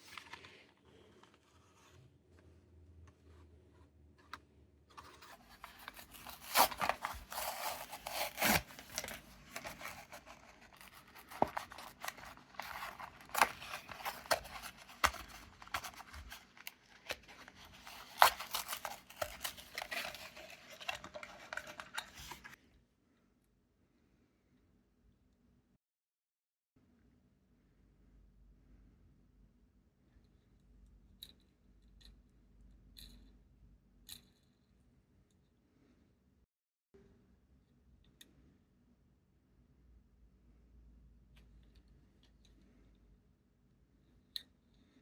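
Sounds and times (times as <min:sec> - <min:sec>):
plastic packaging crackling: 0:05.0 - 0:22.6.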